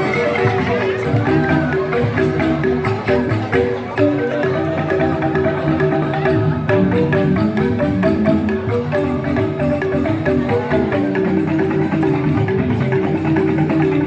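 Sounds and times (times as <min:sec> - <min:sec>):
bamboo xylophones interlocking: 0:00.0 - 0:14.0
percussion: 0:00.0 - 0:14.0.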